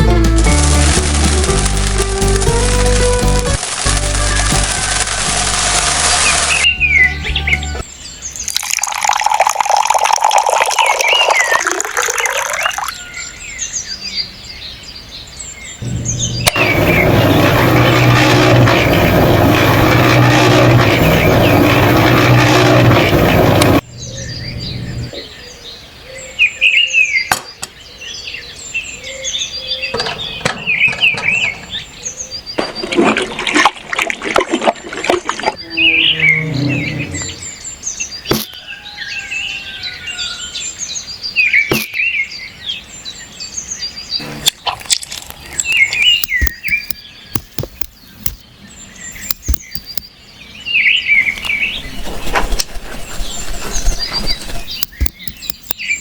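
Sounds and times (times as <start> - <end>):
birds chirping: 0.0 - 8.6, 12.8 - 33.4, 34.7 - 56.0
loud hissing rush: 15.8 - 23.8
rattling clatter: 15.8 - 23.8, 29.9 - 32.0
sharp taps: 46.2 - 48.4, 49.2 - 50.1, 54.7 - 55.8.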